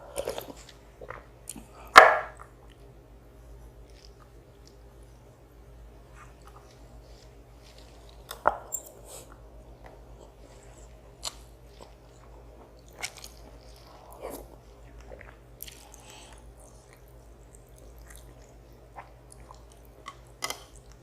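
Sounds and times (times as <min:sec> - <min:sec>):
quiet chewing: 0:00.1 - 0:05.2, 0:06.1 - 0:21.0.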